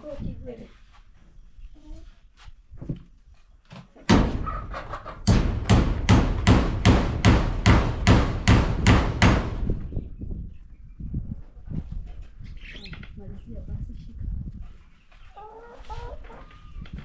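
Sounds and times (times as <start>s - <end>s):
hammer strikes: 4.1s - 4.5s, 5.2s - 9.7s.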